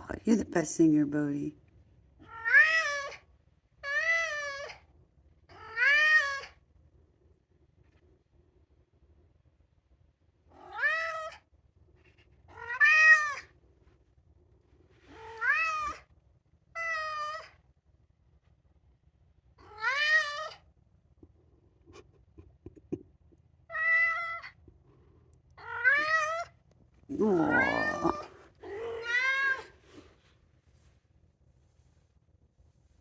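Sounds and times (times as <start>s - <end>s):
cat meowing: 2.2s - 3.2s, 5.5s - 6.6s, 10.6s - 11.4s, 12.5s - 13.5s, 15.1s - 16.0s, 16.8s - 17.5s, 19.6s - 20.6s, 23.7s - 24.6s, 25.6s - 26.5s, 27.1s - 29.7s.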